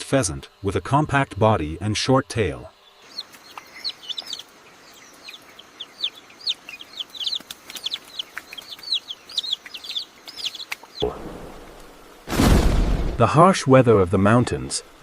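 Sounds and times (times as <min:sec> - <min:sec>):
chicks peeping: 0:02.8 - 0:11.1.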